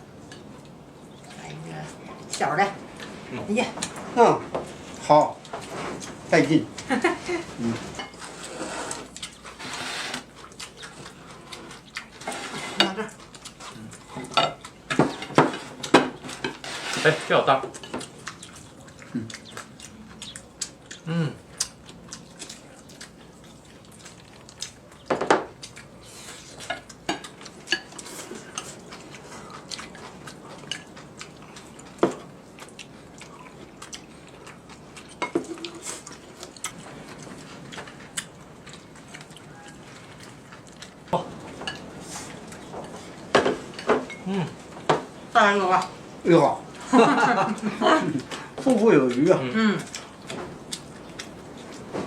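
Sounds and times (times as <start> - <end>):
utensils clinking on plates: 7.8 - 10.2, 11.6 - 13.2, 14.1 - 18.1, 42.7 - 45.1.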